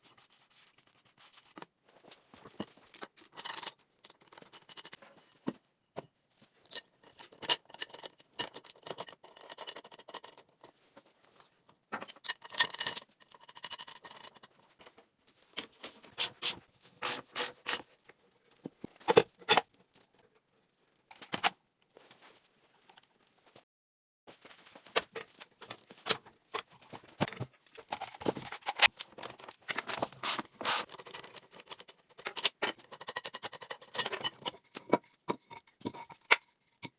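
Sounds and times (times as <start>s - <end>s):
wood and tools clicking and knocking: 24.8s - 36.9s.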